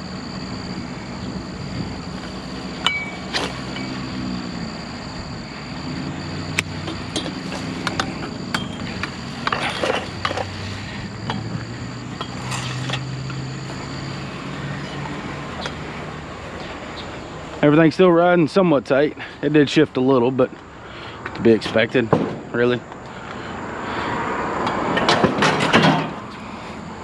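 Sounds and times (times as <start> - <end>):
vehicle engine hum: 0.0 - 27.0
loose metal clinking and rattling: 6.8 - 10.6.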